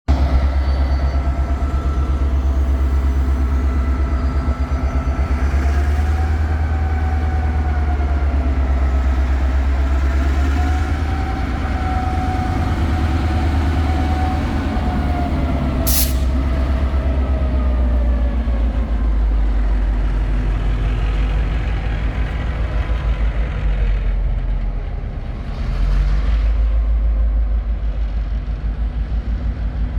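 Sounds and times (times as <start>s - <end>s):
diesel locomotive engine throbbing: 0.1s - 29.9s
sharp air hiss: 15.9s - 16.4s.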